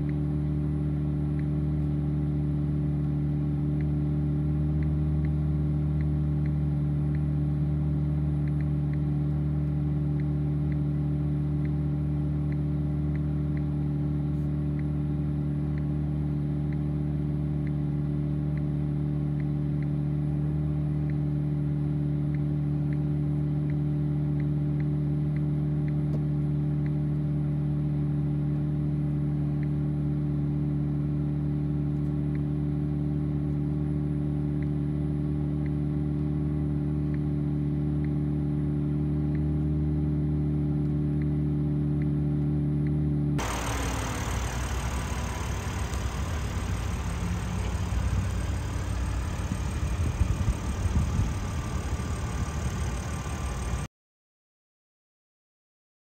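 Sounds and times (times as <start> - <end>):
car engine idling: 43.4 - 53.9.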